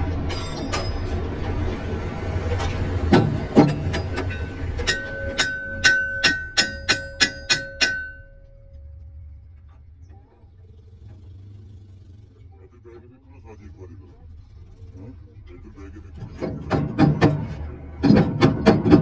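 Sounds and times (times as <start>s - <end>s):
low steady hum: 0.0s - 18.7s
hammer striking steel: 0.2s - 1.2s, 3.0s - 8.9s, 16.4s - 19.0s.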